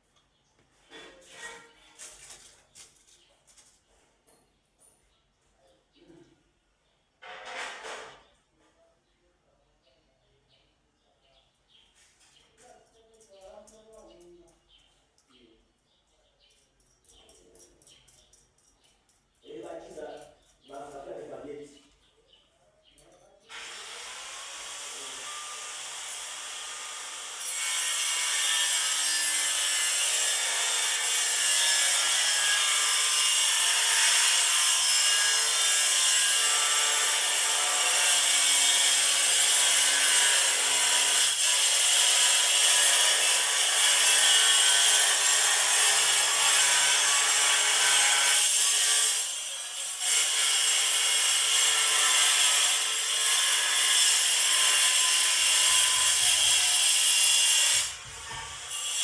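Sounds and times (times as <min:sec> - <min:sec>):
power tool cutting: 0:23.5 - 0:59.0.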